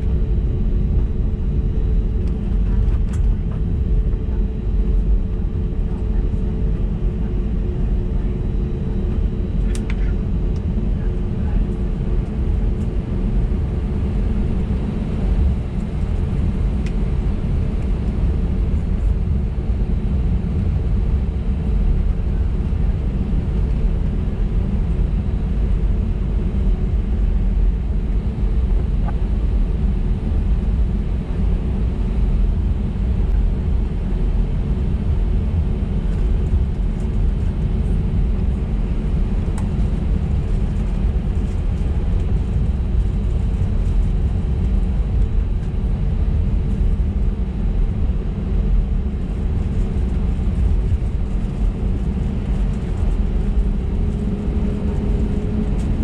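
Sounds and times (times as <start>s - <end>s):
jet engines low rumble: 0.0s - 56.0s
steady cabin hum: 24.4s - 56.0s.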